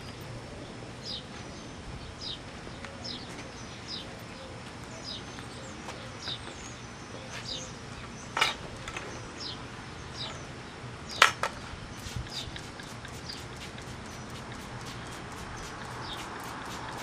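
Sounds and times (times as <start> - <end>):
small bird chirping: 11.9 - 17.0.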